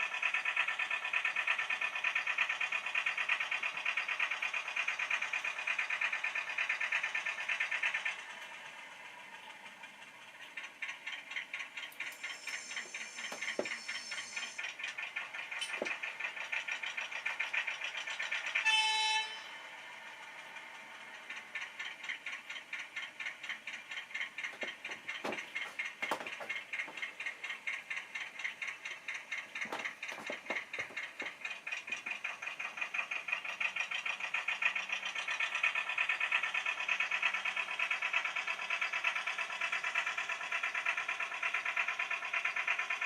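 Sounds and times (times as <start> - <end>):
model train wheels clicking: 0.0 - 43.0
train horn blast: 18.6 - 19.7.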